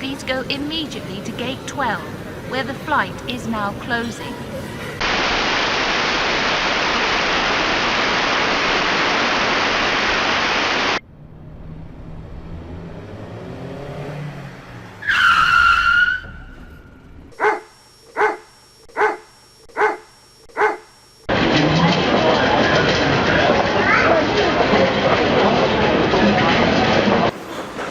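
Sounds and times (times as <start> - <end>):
loud rush of noise: 5.0 - 13.4
short high squeal: 15.0 - 16.6.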